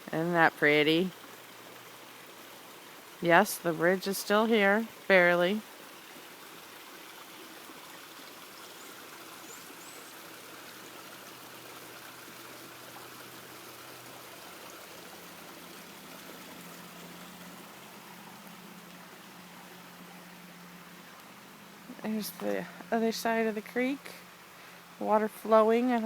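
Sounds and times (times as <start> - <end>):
creek water rushing: 0.0 - 26.0.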